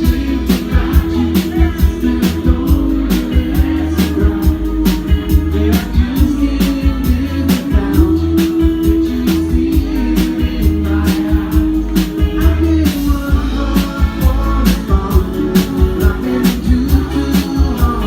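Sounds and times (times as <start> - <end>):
drum kit beat: 0.0 - 18.0
rock band playing: 0.0 - 18.0.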